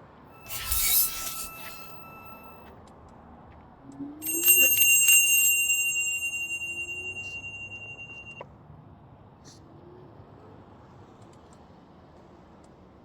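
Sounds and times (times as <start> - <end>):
bicycle bell ringing: 0.4 - 2.6, 4.2 - 8.4.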